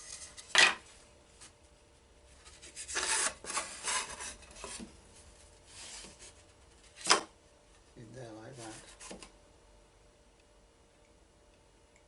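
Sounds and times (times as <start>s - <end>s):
wood scraping against wood: 2.4s - 4.9s.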